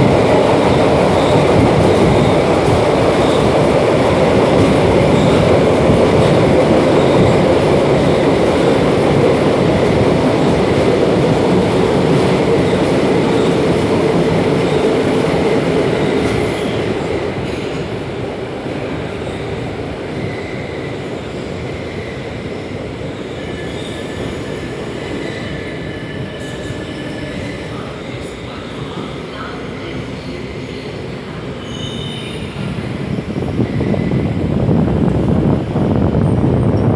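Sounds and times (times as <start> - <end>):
train wheels rumbling: 0.0 - 36.9
faint wheel squeal: 31.6 - 32.6.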